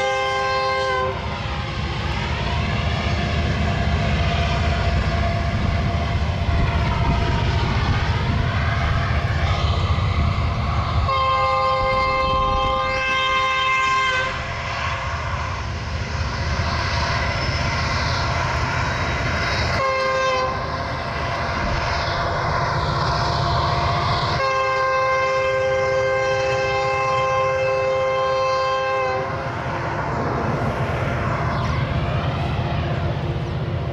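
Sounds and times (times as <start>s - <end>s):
locomotive horn blasts: 0.0s - 1.3s, 11.1s - 15.0s, 19.8s - 20.7s, 24.3s - 29.4s
passing train rumble: 0.0s - 33.9s.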